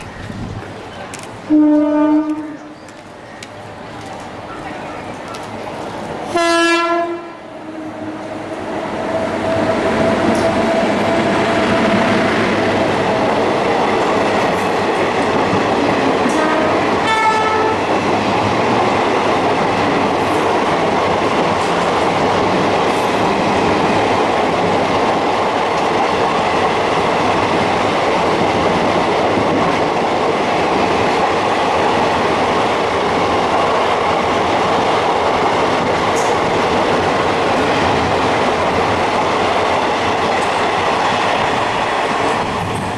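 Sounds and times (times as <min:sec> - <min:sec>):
train coaches rushing past: 0:00.0 - 0:42.9
train horn blast: 0:01.5 - 0:02.8, 0:06.3 - 0:10.5, 0:16.2 - 0:17.8.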